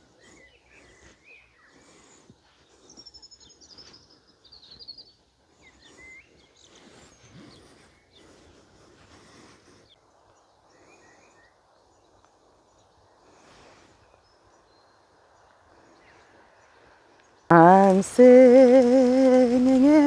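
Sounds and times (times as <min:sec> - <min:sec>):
faint background hiss: 0:17.5 - 0:20.0.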